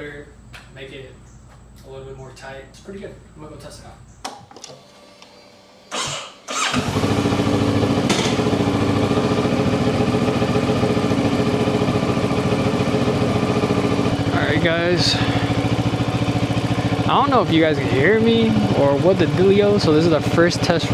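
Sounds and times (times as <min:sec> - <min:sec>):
motorcycle engine starting: 0:04.6 - 0:20.9
motorcycle engine idling: 0:05.9 - 0:20.9.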